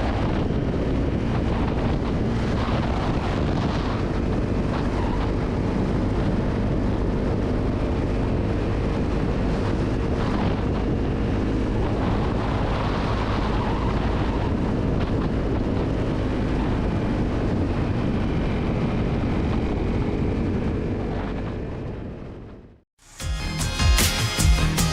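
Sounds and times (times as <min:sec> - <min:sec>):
wind rushing over microphone: 0:00.0 - 0:22.8.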